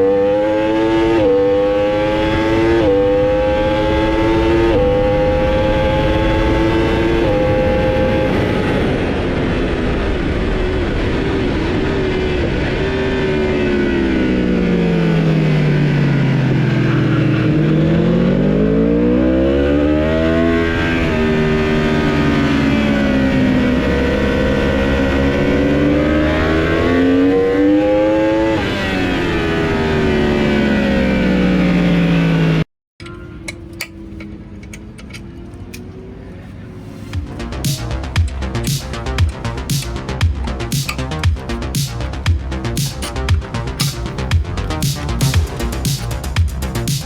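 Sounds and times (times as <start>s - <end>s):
superbike engine revving: 0.0s - 32.6s, 37.1s - 47.0s
gear upshifts: 33.0s - 47.0s.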